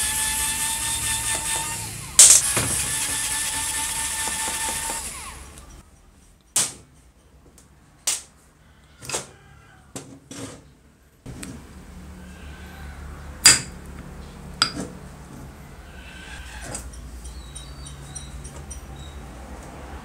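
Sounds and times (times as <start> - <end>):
small motorised tool running: 0.0 - 5.8.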